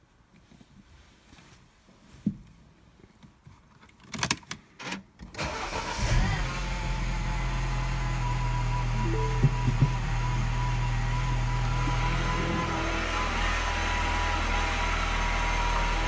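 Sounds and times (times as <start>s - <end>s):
car engine starting and idling: 5.4s - 16.0s.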